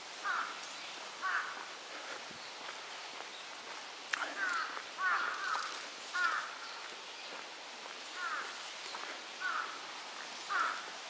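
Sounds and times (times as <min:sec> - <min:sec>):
bird calling: 0:04.2 - 0:06.9, 0:08.2 - 0:09.8, 0:10.5 - 0:10.8.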